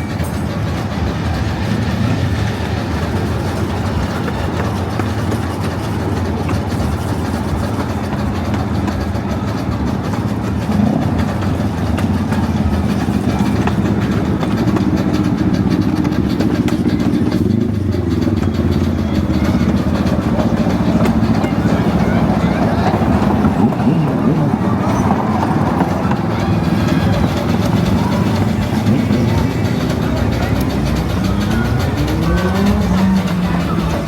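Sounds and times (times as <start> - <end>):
steam train rumbling on track: 0.0 - 34.0.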